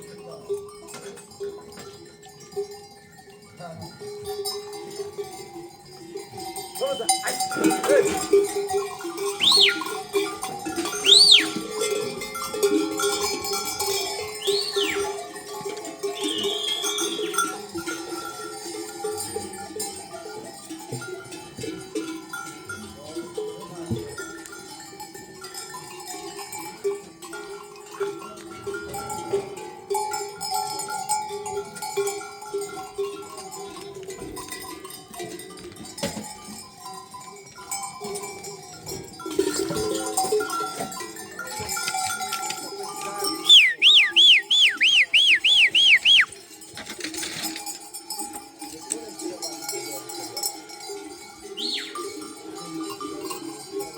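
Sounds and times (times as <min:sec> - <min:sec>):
livestock bells clanking: 0:00.0 - 0:53.9
high whistle-like glides: 0:09.4 - 0:09.8, 0:11.0 - 0:11.5, 0:43.5 - 0:46.3.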